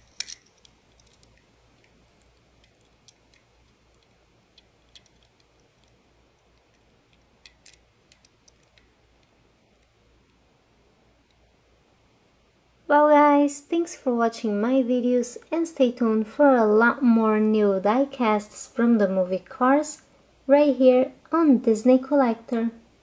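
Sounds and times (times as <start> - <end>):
toy car packaging clicks and taps: 0.0 - 9.9.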